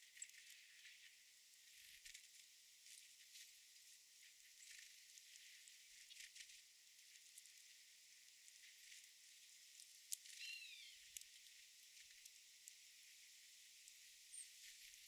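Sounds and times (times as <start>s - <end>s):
garden ambience hiss: 10.2s - 11.3s.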